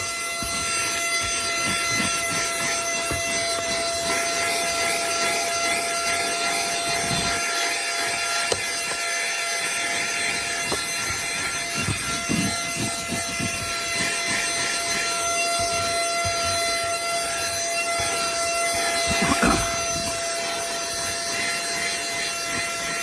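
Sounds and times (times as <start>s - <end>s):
handheld vacuum whine: 0.0s - 23.0s.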